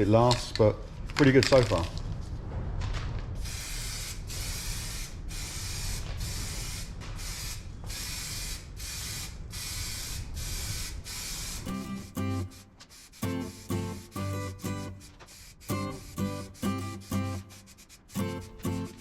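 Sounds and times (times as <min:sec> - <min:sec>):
aerosol spray can bursts: 0:03.4 - 0:19.0.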